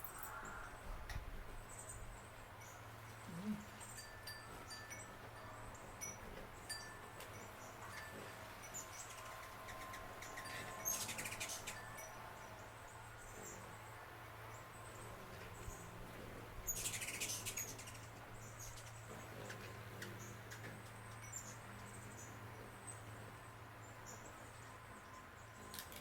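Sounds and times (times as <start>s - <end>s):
birds chattering clicks: 16.6s - 23.1s.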